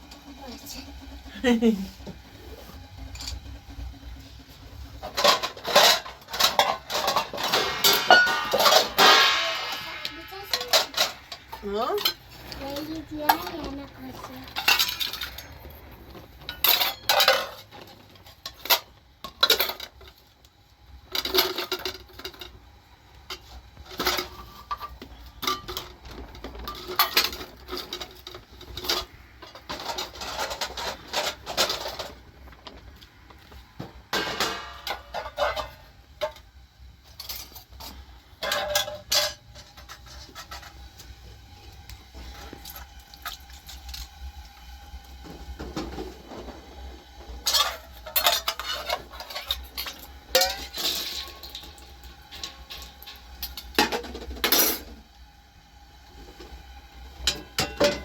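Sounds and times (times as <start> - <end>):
dishes and cutlery clinking: 5.0 - 15.6, 16.4 - 20.0, 34.1 - 36.4, 47.4 - 53.2, 57.3 - 58.0.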